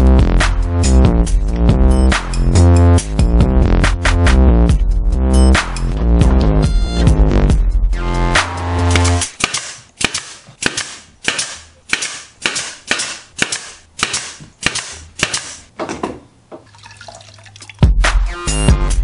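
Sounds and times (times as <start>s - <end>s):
nail gun firing: 8.9s - 15.7s.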